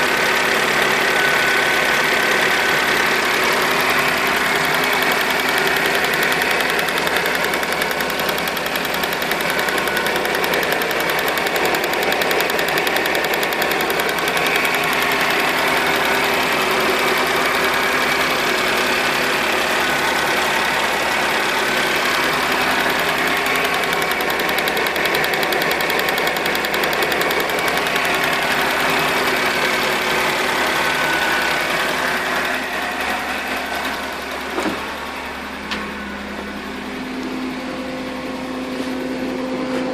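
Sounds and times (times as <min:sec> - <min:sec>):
car engine running: 0:00.0 - 0:39.9
valve ticking rapidly: 0:03.9 - 0:16.6, 0:22.2 - 0:29.4.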